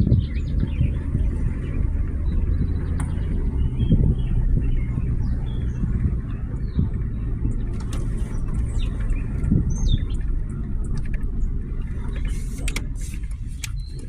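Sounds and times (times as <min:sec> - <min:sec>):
bird chirps: 0:00.0 - 0:10.3
car driving rumble from inside: 0:00.0 - 0:14.0.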